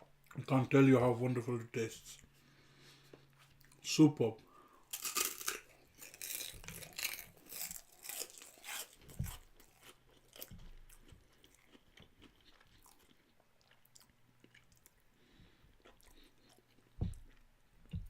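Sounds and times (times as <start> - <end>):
person chewing crunchy food: 4.8 - 18.0.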